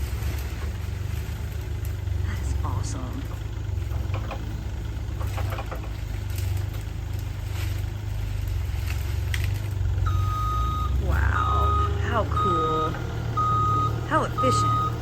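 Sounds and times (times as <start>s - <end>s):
work vehicle engine idling: 0.0s - 15.0s
knocks and clatter: 2.7s - 10.0s
reversing alarm beeping: 10.0s - 15.0s.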